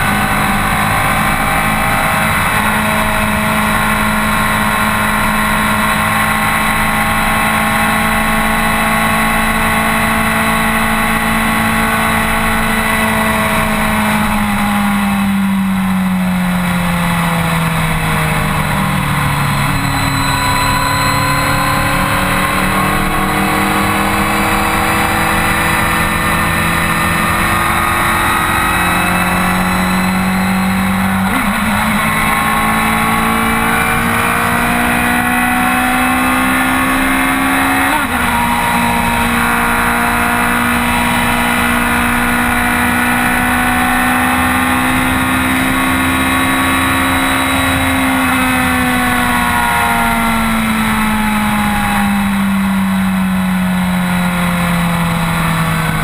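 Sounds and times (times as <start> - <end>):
motorcycle engine running: 0.0 - 56.0
wind and road rush: 0.0 - 56.0.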